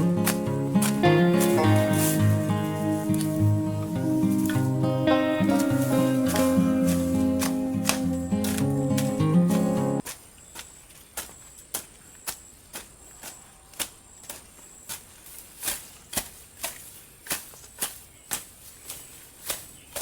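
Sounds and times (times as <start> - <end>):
guitar music: 0.0 - 10.0
hand tool chopping grass: 0.0 - 20.0.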